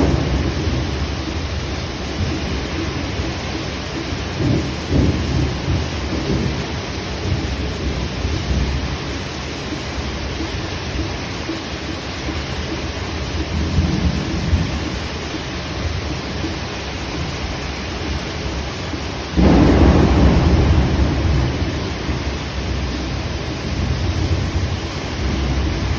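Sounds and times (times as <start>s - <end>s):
heavy rain: 0.0s - 25.9s
thunder rumble: 0.0s - 25.9s.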